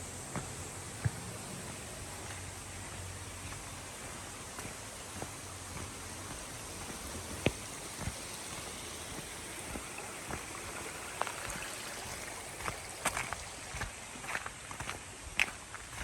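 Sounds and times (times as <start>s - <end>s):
footsteps on trail: 0.0s - 16.0s
mountain stream rushing: 0.0s - 16.0s.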